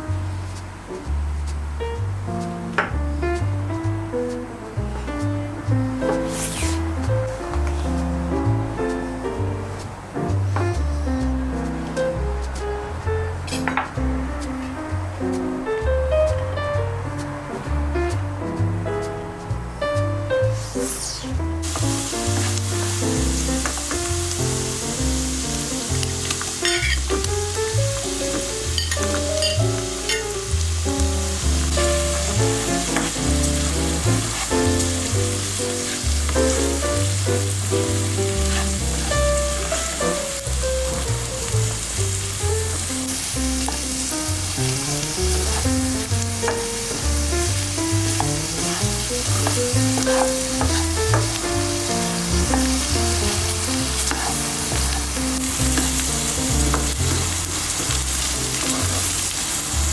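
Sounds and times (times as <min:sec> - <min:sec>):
background music: 0:00.0 - 0:59.8
food sizzling in a pan: 0:06.0 - 0:07.1, 0:13.4 - 0:14.1, 0:20.4 - 0:59.9.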